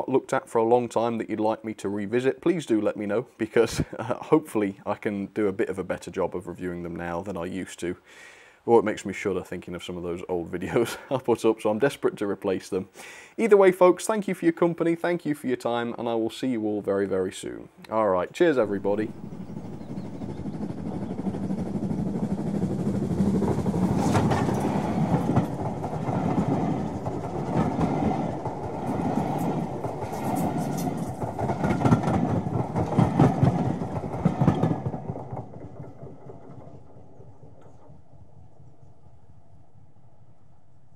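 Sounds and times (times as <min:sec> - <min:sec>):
train wheels clattering: 0:18.6 - 0:39.3.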